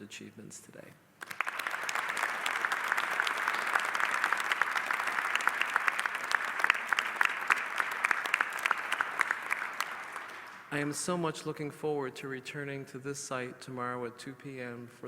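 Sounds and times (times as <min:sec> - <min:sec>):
audience applauding: 0:01.2 - 0:10.9.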